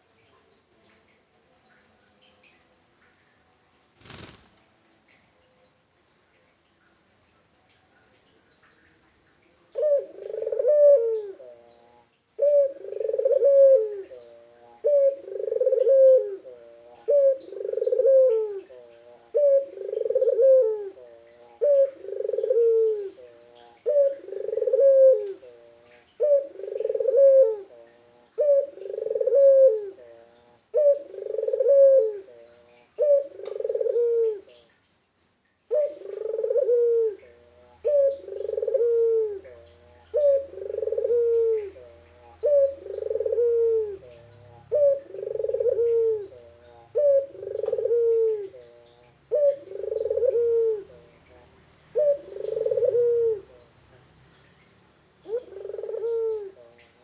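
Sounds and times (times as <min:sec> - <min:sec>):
dove cooing: 0:09.7 - 0:11.7, 0:12.4 - 0:34.6, 0:35.7 - 0:53.7, 0:55.2 - 0:57.0.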